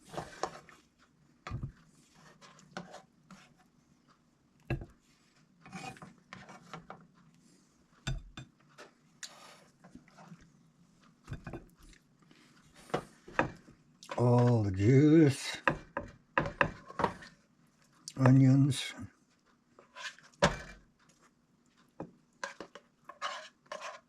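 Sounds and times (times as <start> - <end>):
utensils scraping a pot: 22.4 - 24.0.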